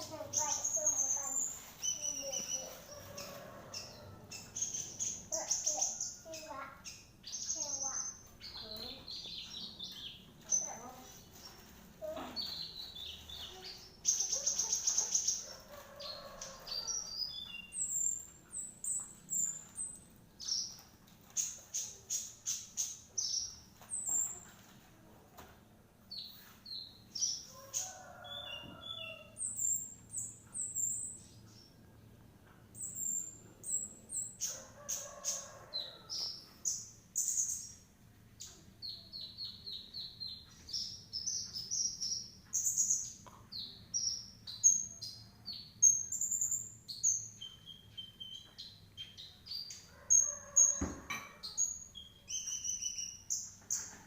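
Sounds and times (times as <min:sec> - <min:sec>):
bird singing high chirps and trills: 0:00.0 - 0:24.7, 0:26.1 - 0:54.0
knock: 0:50.8 - 0:51.3.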